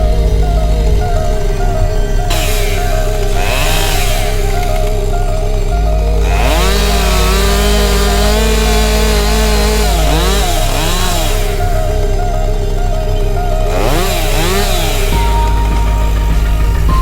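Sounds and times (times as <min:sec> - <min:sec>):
chainsaw revving while cutting: 0:02.3 - 0:12.2, 0:13.7 - 0:15.8.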